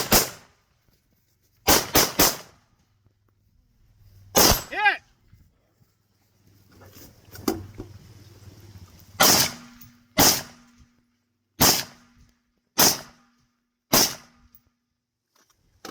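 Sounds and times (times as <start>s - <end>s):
gunshots cracking: 0.0s - 0.5s, 1.7s - 2.6s, 4.4s - 4.8s, 9.2s - 10.6s, 11.6s - 12.1s, 12.8s - 13.2s, 13.9s - 14.4s.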